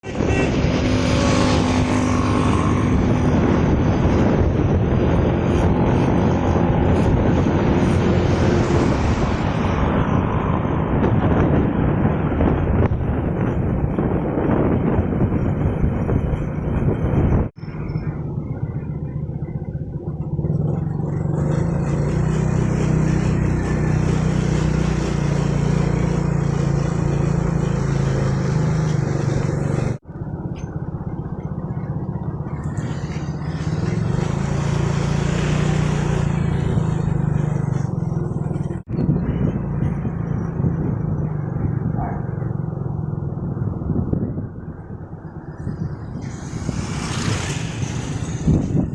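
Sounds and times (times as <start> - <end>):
motorcycle engine humming: 0.0 - 48.9
wind and road noise: 0.0 - 48.9.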